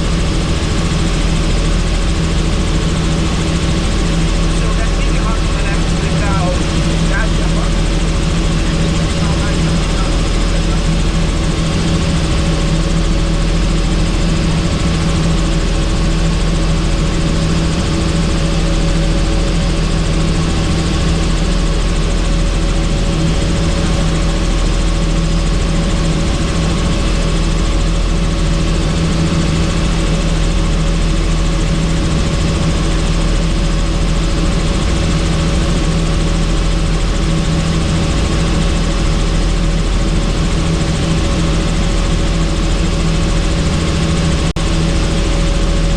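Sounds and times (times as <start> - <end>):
helicopter engine and rotor noise: 0.0 - 45.9.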